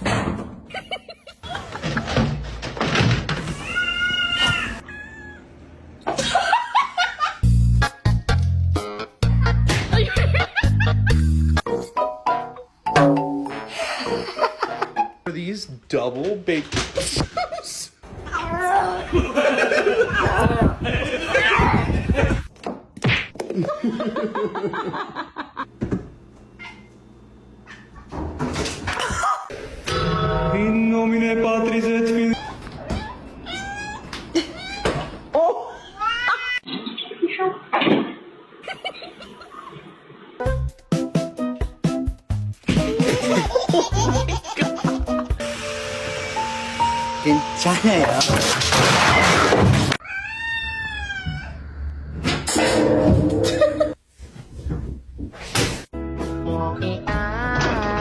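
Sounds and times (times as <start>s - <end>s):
cat meowing: 50.0s - 51.7s.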